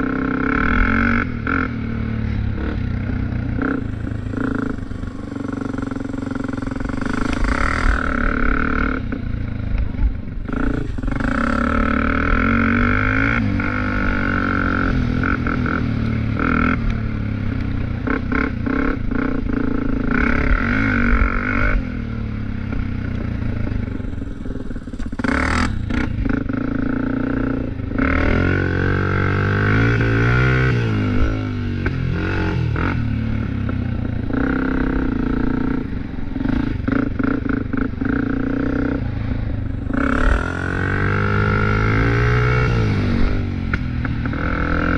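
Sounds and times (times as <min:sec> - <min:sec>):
off-road vehicle engine revving: 0:10.5 - 0:17.0, 0:25.0 - 0:44.9.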